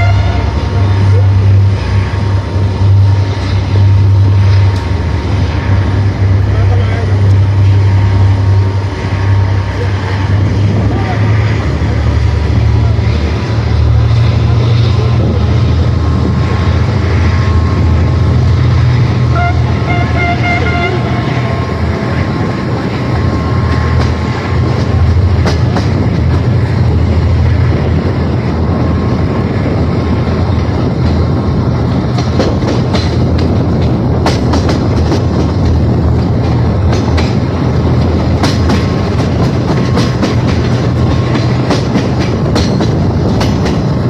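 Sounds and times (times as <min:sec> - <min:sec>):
train horn: 0:00.0 - 0:00.9, 0:19.2 - 0:22.1
train engine and wheels rumbling: 0:00.0 - 0:44.0.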